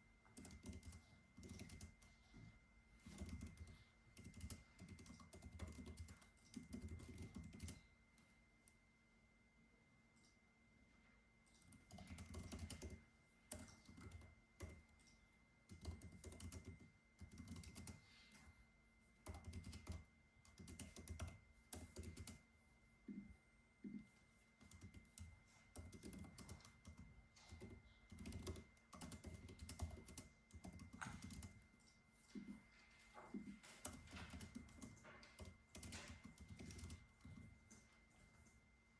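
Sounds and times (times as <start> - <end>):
typing on computer keyboard: 0.2 - 2.2, 3.0 - 7.9, 11.5 - 18.1, 19.2 - 22.4, 24.6 - 32.0, 33.4 - 37.9.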